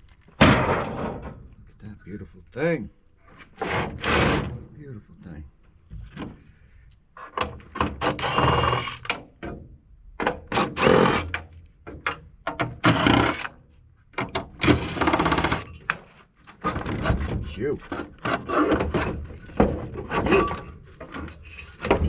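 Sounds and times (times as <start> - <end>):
power tool bursts: 8.0 - 9.0.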